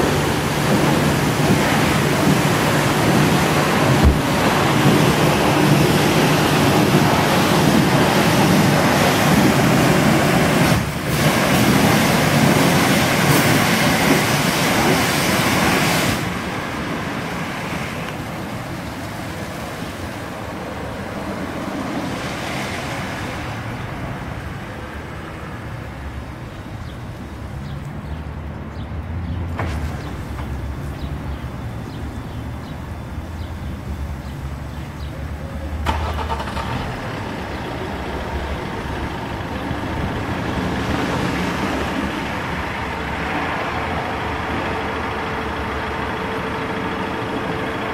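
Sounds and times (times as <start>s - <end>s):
high-pressure water spray hissing: 0.0s - 23.7s.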